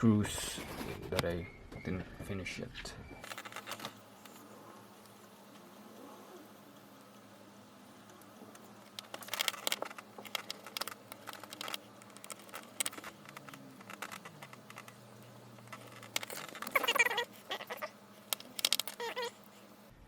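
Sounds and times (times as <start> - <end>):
screwdriver clicking on plastic: 8.9 - 19.3.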